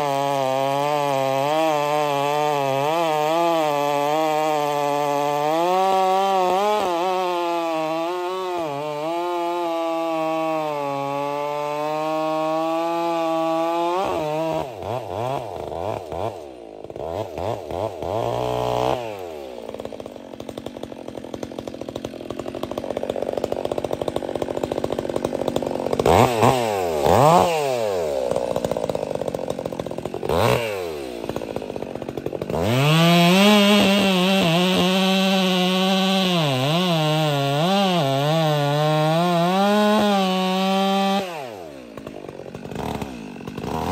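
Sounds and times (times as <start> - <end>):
chainsaw revving and idling: 0.0 - 43.9.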